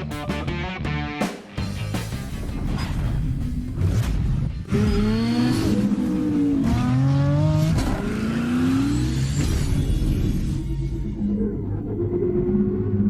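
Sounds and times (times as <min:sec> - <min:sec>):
car engine revving: 0:03.2 - 0:12.9.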